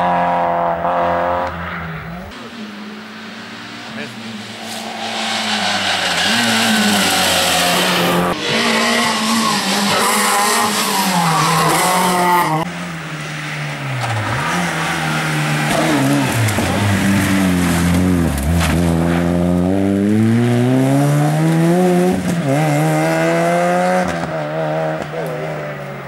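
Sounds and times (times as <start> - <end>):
rally car engine revving hard: 5.4 - 12.7, 13.9 - 25.6.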